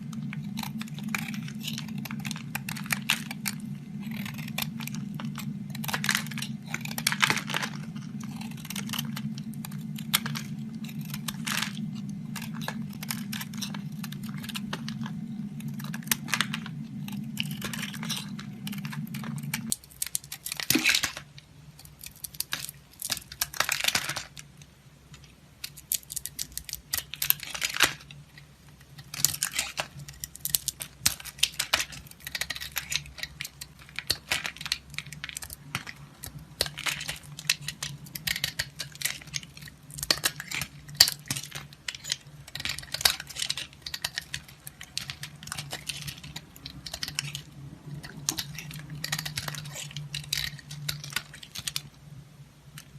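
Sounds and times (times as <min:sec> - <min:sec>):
steady low hum: 0:00.0 - 0:19.8, 0:27.1 - 0:52.9
soap crunching as it is cut: 0:25.6 - 0:28.1, 0:28.9 - 0:51.8.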